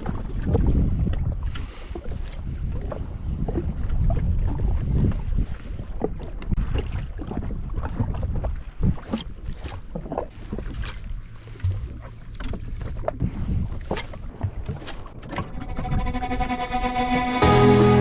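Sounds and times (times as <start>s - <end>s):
wind buffeting microphone: 0.0s - 10.8s, 11.6s - 16.2s
water slapping against hull: 0.0s - 15.6s
water splashes: 0.0s - 15.8s.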